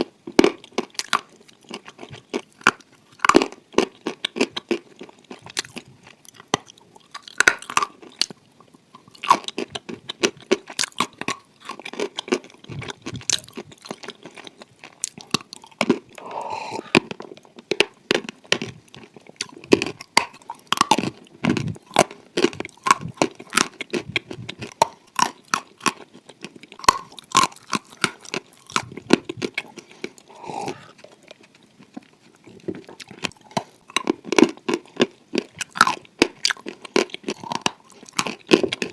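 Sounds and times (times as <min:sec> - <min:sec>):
person chewing and crunching: 0:00.0 - 0:38.9.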